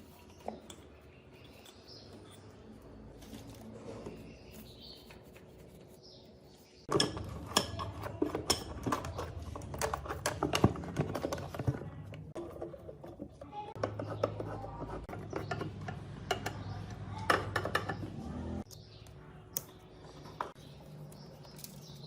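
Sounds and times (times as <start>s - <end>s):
tools and parts clicking and knocking: 6.9s - 18.8s, 19.6s - 22.0s.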